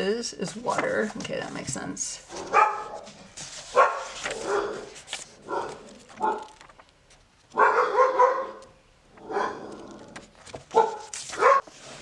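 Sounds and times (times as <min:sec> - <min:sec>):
dog yelping: 0:02.4 - 0:03.0, 0:07.6 - 0:08.6.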